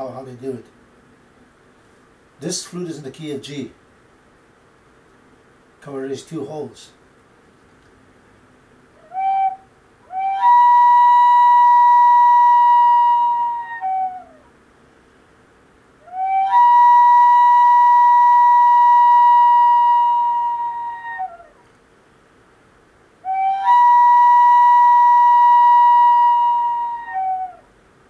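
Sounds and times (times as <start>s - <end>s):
flute imitating loon wail: 9.0s - 14.5s, 16.0s - 21.6s, 23.2s - 27.7s.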